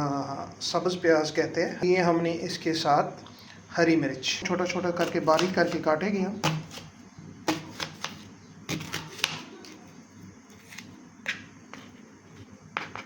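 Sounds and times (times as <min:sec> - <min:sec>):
knife chopping on cutting board: 0:05.0 - 0:05.8, 0:06.4 - 0:06.9, 0:07.5 - 0:09.5.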